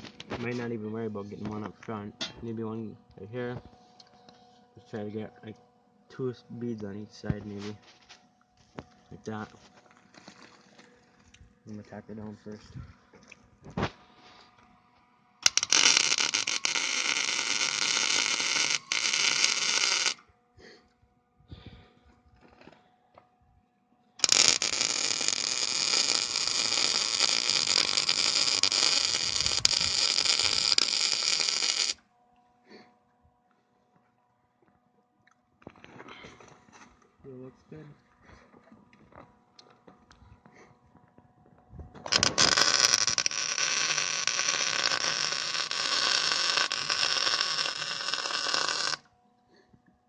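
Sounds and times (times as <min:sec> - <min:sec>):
arc welder crackling: 0:15.4 - 0:20.2, 0:24.2 - 0:32.0, 0:42.0 - 0:49.1.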